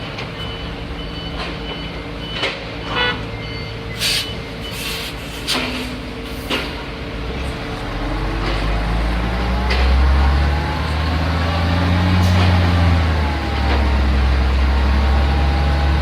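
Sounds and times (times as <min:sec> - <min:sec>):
diesel machinery running: 0:00.0 - 0:16.0
reversing alarm beeping: 0:00.3 - 0:05.2.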